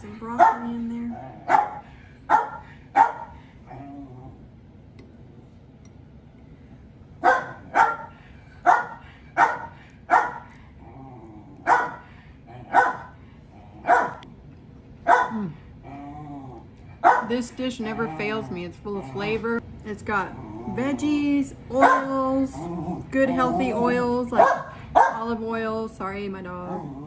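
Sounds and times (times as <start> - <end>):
dog barking: 0.4 - 0.8, 1.4 - 3.4, 7.2 - 10.5, 11.7 - 12.0, 12.7 - 13.2, 13.8 - 14.2, 15.1 - 15.4, 17.0 - 17.4, 21.8 - 22.2, 24.4 - 25.2.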